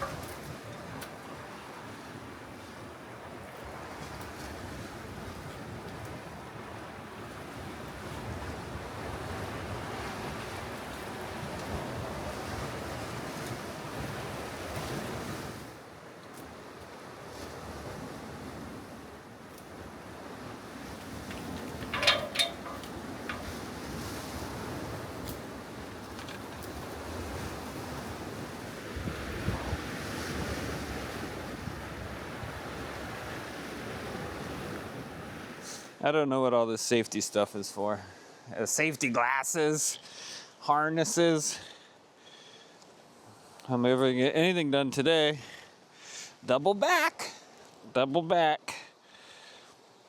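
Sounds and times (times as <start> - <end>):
wind buffeting microphone: 20.2 - 32.6.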